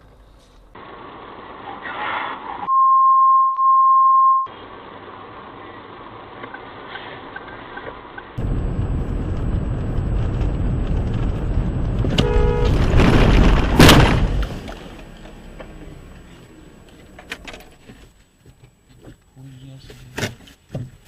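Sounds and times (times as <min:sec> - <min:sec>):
car road noise rumbling: 0:00.0 - 0:02.7, 0:04.5 - 0:19.2
vehicle horn honking: 0:12.1 - 0:12.9
loud sharp bang: 0:12.1 - 0:14.6.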